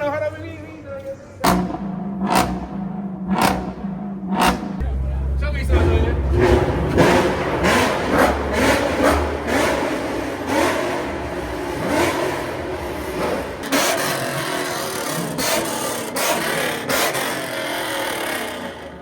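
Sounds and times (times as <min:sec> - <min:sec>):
car engine revving: 0:01.4 - 0:19.0
loud rushing noise: 0:04.0 - 0:13.7.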